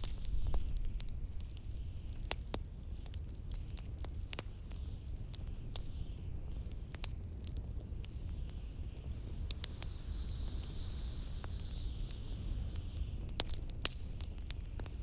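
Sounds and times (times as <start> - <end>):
wood fire crackling: 0.0 - 15.0
blizzard wind rumbling: 8.6 - 14.6.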